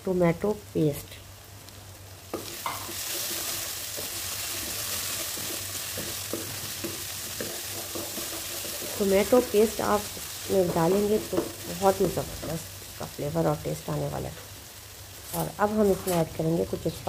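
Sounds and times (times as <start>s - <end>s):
food sizzling in hot oil: 0.4s - 17.0s
wooden spatula scraping a pan: 2.4s - 9.4s.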